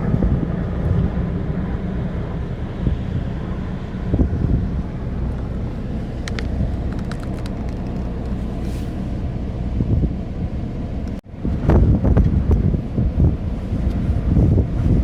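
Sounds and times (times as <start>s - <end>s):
car engine and road noise: 0.0s - 15.0s
wind: 0.0s - 15.0s.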